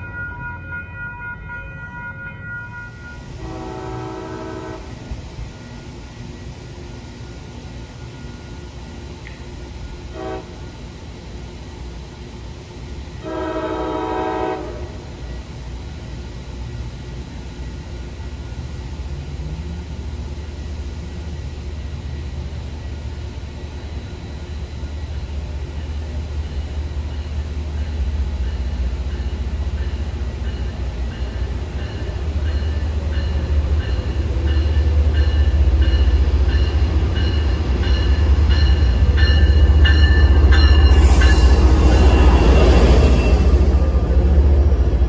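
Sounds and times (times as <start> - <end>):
locomotive engine and wheels rumble: 0.0 - 45.0
train horn blasts: 0.1 - 5.0, 10.1 - 10.7, 13.2 - 15.1.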